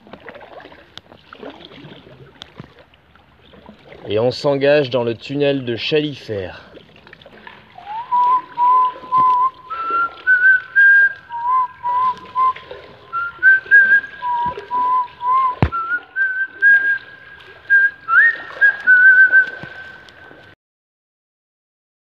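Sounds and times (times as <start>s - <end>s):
person whistling a tune: 7.8s - 20.1s
sharp knock: 15.6s - 15.8s.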